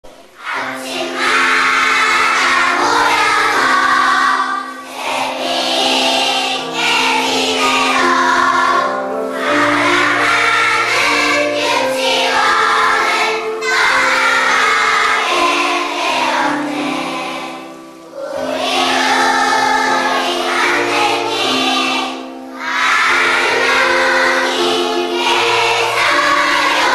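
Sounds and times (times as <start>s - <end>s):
young children singing: 0.0s - 26.9s.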